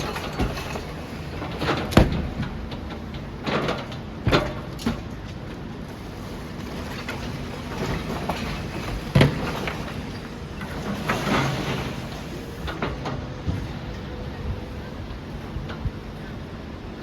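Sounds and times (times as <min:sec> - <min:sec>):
clanks of breaking material: 0:00.0 - 0:02.6
demolition machine engine drone: 0:00.0 - 0:17.0.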